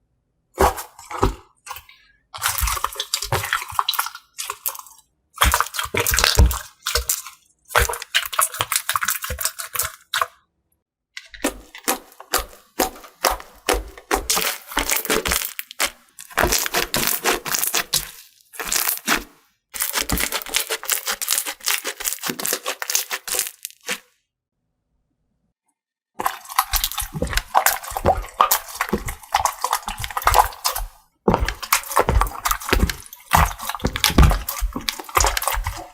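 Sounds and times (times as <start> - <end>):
slime crackling and popping: 11.4 - 24.0, 26.2 - 35.9.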